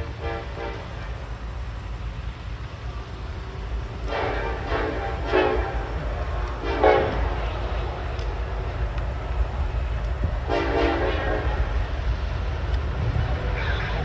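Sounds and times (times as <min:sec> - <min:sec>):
locomotive air horn blasts: 0:00.0 - 0:01.2, 0:04.1 - 0:07.7, 0:10.5 - 0:11.7, 0:13.0 - 0:14.0
train rumbling: 0:00.0 - 0:14.0.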